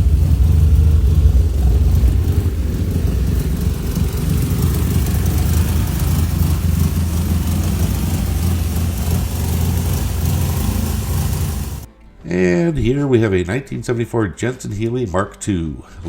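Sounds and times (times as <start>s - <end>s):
car engine idling: 0.0s - 11.9s.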